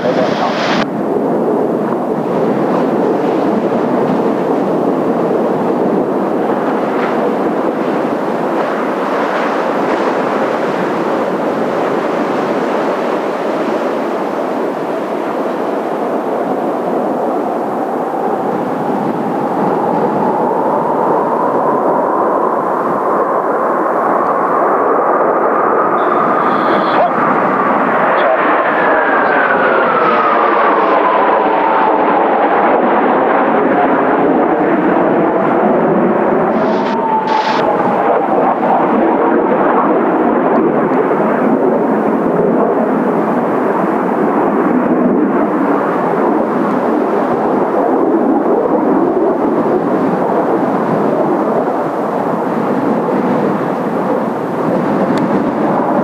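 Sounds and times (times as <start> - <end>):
jet aircraft roar: 0.0 - 56.0
rising engine whine: 25.6 - 33.2, 34.5 - 39.3.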